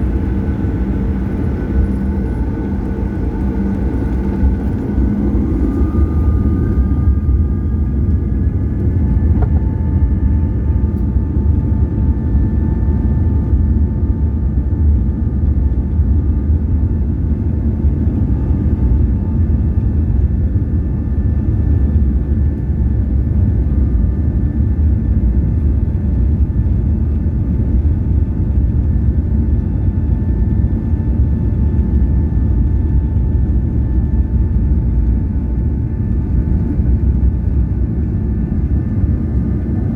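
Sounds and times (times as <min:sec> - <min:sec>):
whining fan tones: 0:00.0 - 0:15.0
jet engines low rumble: 0:00.0 - 0:39.9.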